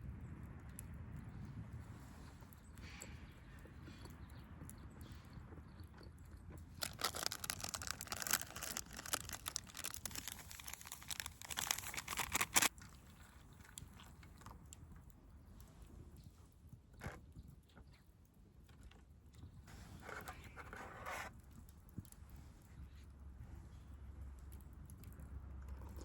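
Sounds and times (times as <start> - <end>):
crunching crackling clicks: 6.8 - 13.0.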